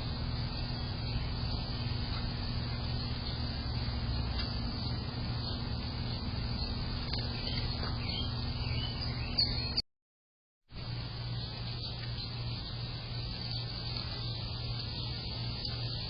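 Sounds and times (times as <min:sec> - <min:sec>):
faint bird chirps: 0:00.0 - 0:09.8
steady low hum: 0:00.0 - 0:09.8, 0:10.7 - 0:16.0
thin high whine: 0:00.0 - 0:09.8.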